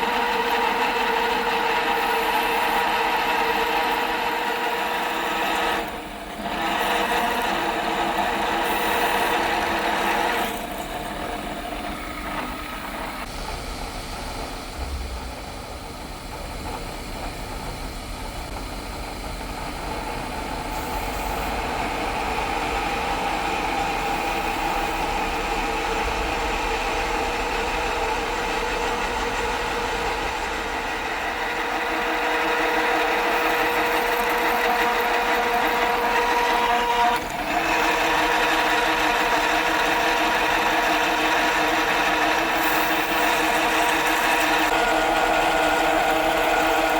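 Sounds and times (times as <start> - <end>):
drilling through steel: 0.0 - 12.2, 29.0 - 46.9
milling machine hum: 0.0 - 46.9.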